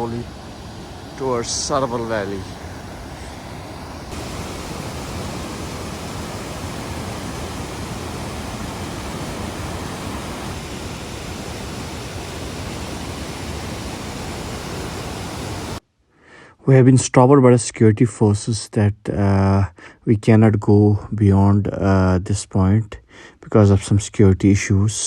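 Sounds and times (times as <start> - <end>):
steady rushing noise: 0.0 - 15.8.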